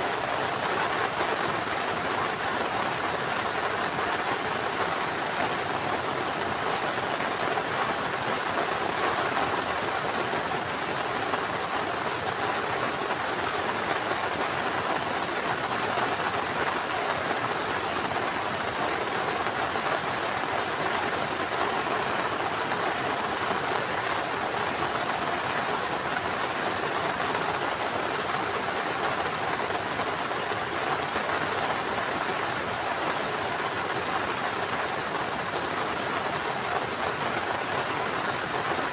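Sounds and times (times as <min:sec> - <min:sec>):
heavy rain pattering: 0:00.0 - 0:38.9.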